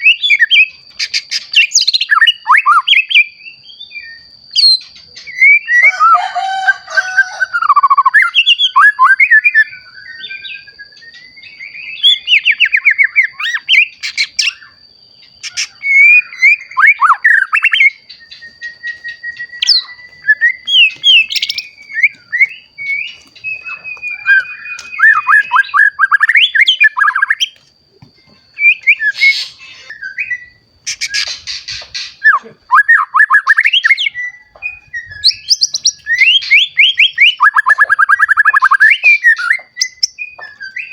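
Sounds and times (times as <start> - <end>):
bird singing trills and whistles: 0.0 - 40.9
faint steady high tone: 3.2 - 30.8.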